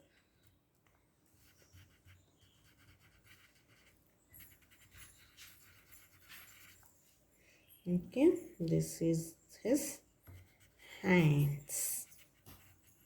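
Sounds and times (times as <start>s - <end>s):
pencil scratching on paper: 1.4s - 6.9s, 10.2s - 13.0s.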